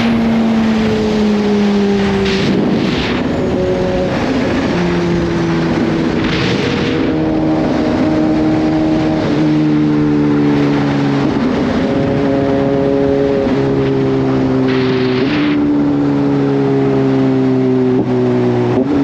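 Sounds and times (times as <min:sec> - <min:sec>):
motorcycle engine cruising: 0:00.0 - 0:19.0
wind and road noise: 0:00.0 - 0:19.0.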